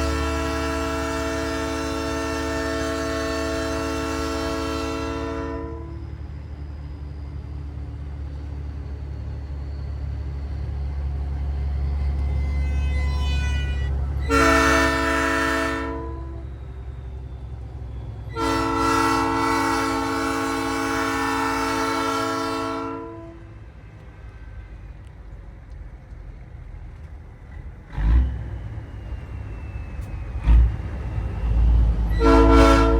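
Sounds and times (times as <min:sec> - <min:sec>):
chime train horn blasts: 0:00.0 - 0:06.1, 0:12.2 - 0:16.6, 0:18.3 - 0:23.5, 0:32.1 - 0:32.9
truck engine rumble: 0:00.0 - 0:32.9.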